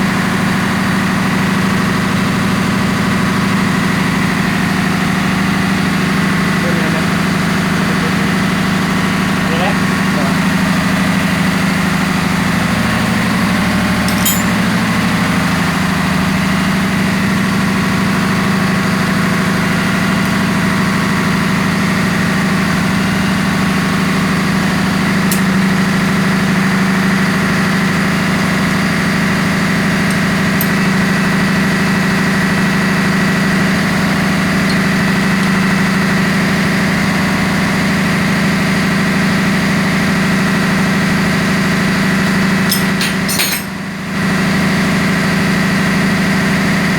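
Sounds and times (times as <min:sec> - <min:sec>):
engine-room machinery drone: 0:00.0 - 0:46.9.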